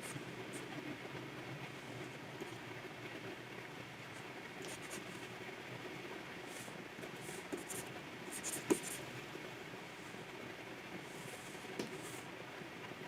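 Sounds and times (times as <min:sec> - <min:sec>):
low background hum: 0:00.0 - 0:13.0
pen nib scratching tablet: 0:07.2 - 0:09.0.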